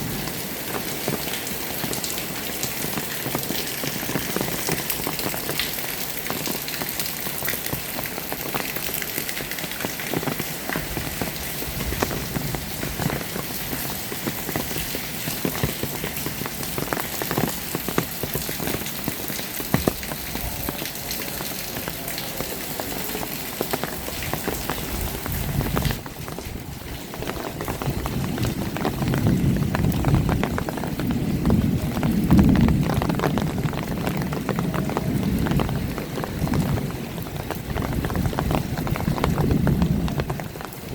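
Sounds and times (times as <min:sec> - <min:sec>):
heavy rain hiss: 0:00.0 - 0:40.9
raindrops striking close by: 0:00.0 - 0:40.9.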